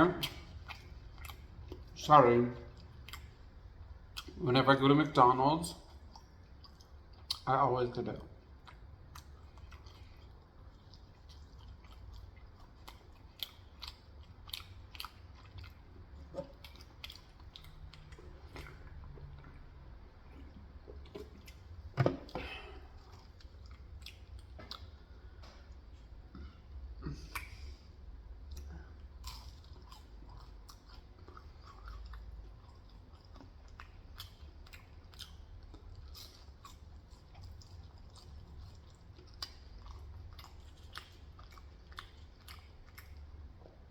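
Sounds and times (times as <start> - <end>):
chewing food close up: 0.0 - 4.5, 5.6 - 7.5, 8.1 - 26.2, 27.2 - 43.9
steady low hum: 0.0 - 43.9
wet mouth clicks: 27.1 - 27.8.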